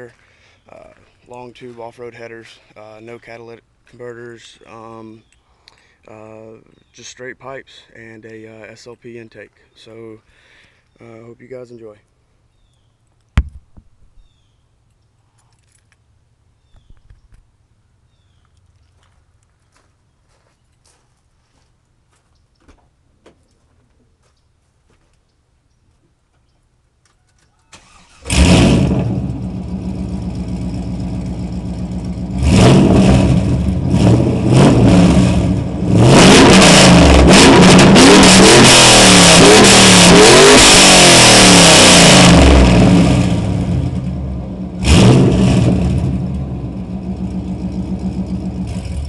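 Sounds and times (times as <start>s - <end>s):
loud car engine revving and idling: 28.3s - 49.0s.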